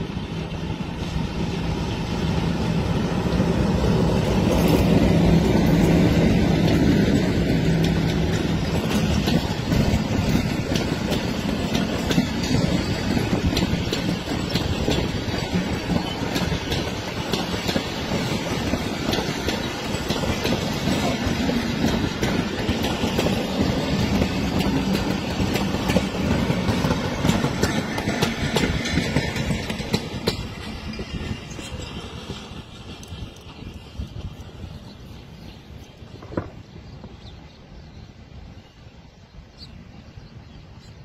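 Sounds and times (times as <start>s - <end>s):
train wheels rumbling on rail: 0.0s - 41.0s
clickety-clack over rail joints: 0.5s - 36.6s.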